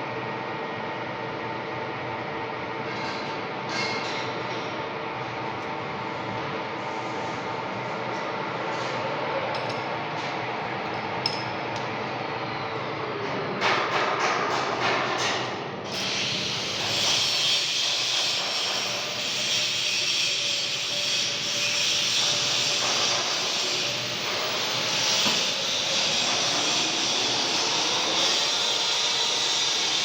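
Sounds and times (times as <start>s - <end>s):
metal lathe machining hiss: 15.8s - 30.0s.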